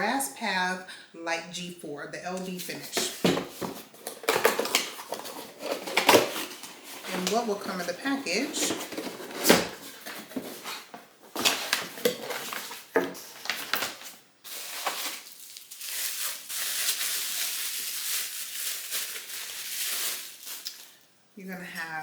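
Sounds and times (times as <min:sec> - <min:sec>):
wrapping rustling: 0:02.6 - 0:21.0
box and parts knocking: 0:03.0 - 0:07.8.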